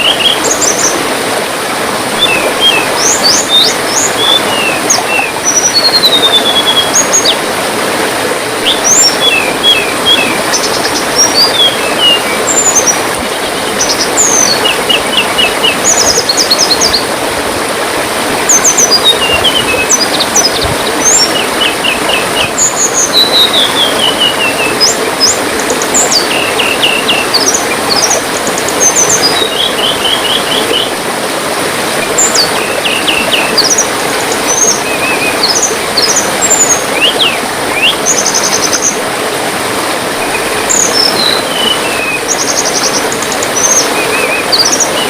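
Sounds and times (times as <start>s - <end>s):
water trickling: 0.0s - 45.0s
songbird chirping and trilling: 2.2s - 7.4s, 8.6s - 17.0s, 18.5s - 30.9s, 40.2s - 45.0s.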